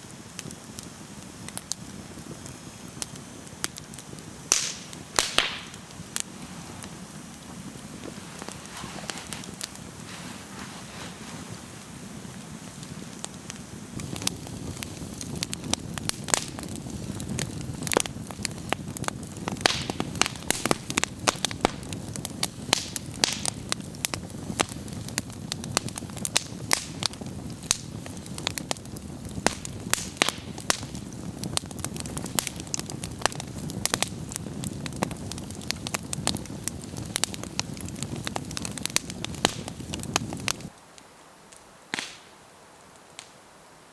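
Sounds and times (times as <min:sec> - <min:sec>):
campfire crackling and popping: 0:00.0 - 0:43.6
low fire rush: 0:01.0 - 0:40.7.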